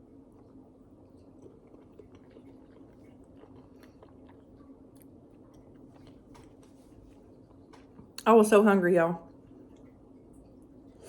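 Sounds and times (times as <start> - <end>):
close-up chewing: 0.0 - 8.2.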